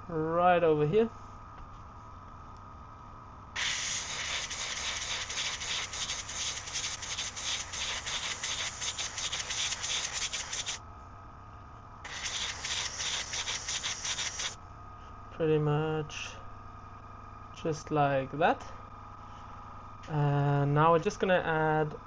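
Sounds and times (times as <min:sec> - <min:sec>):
faint steady hum: 0:00.0 - 0:22.0
airbrush spraying paint: 0:03.6 - 0:10.8, 0:12.1 - 0:14.6.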